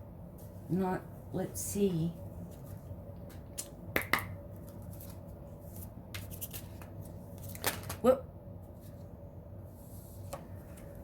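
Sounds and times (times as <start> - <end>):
faint steady hum: 0.0 - 11.0
cards being shuffled: 2.5 - 8.0.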